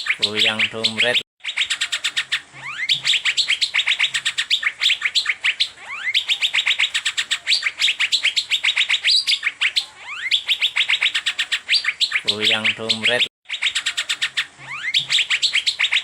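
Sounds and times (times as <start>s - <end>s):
bird chattering song: 0.0s - 16.0s.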